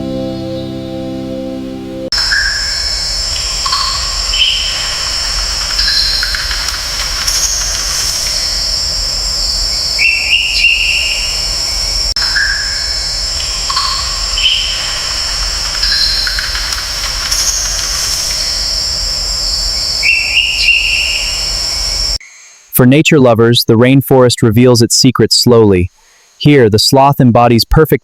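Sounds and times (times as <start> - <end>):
high-pitched insect drone: 2.1 - 22.6
short bird calls: 2.2 - 22.5.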